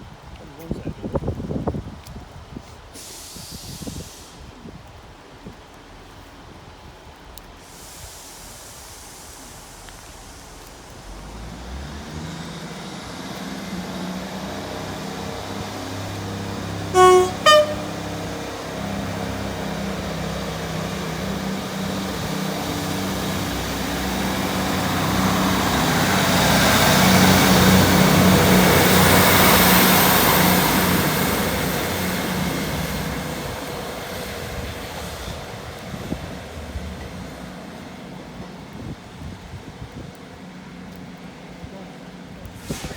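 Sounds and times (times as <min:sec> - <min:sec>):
diesel train engine drone: 0:08.0 - 0:42.7
train horn: 0:16.7 - 0:19.2.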